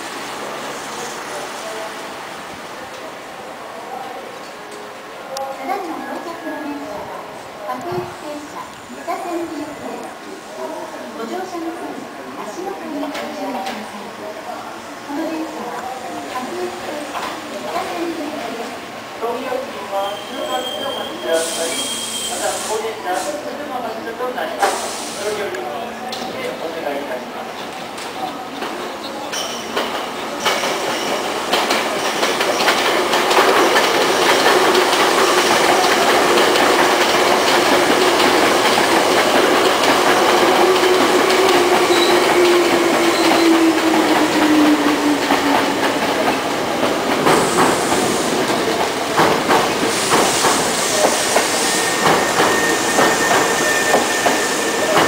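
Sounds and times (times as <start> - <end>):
wheels clacking over rail joints: 27.6 - 55.0.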